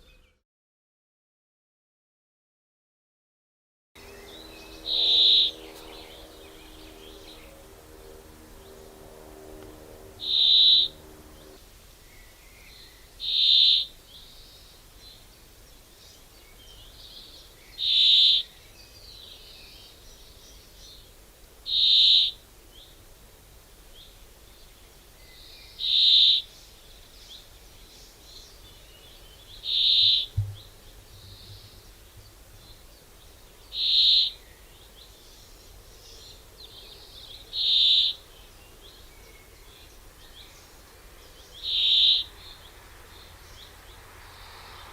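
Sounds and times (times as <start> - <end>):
bird giving short high call: 9.5 - 11.6.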